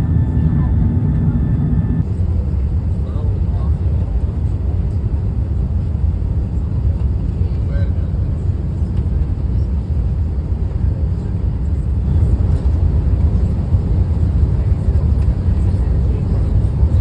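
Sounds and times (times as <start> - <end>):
jet engines roaring: 0.0 - 2.1.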